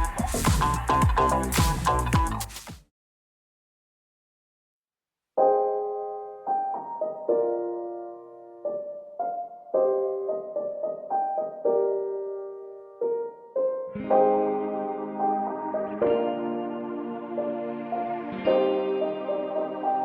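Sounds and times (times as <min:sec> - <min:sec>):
gentle piano melody: 0:05.4 - 0:20.0.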